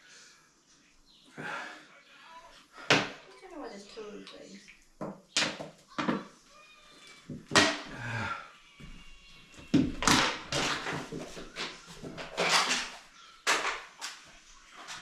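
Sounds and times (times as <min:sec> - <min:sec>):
rustles of parts handled: 0:10.5 - 0:15.0.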